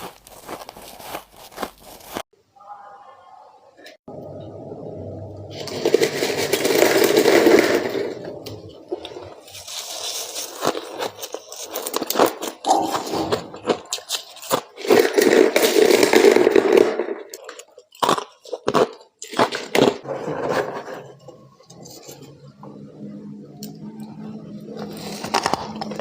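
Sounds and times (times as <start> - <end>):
crunching frost being chewed: 0.0 - 2.3, 8.9 - 16.0, 17.4 - 20.0, 24.8 - 26.0.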